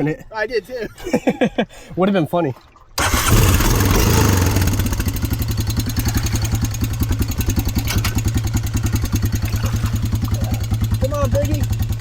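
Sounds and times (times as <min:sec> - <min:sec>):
atv engine idling: 0:03.0 - 0:12.0.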